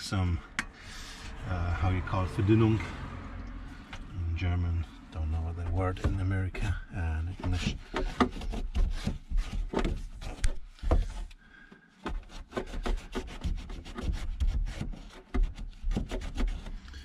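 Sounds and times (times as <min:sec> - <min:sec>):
cloth scrubbing a plastic housing: 0:12.0 - 0:16.9.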